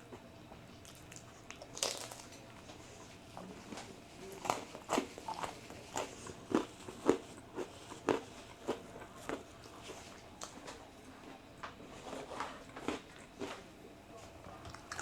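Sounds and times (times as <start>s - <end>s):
person chewing crunchy food: 0.8s - 2.4s, 4.4s - 10.6s, 12.1s - 13.6s, 14.7s - 15.0s.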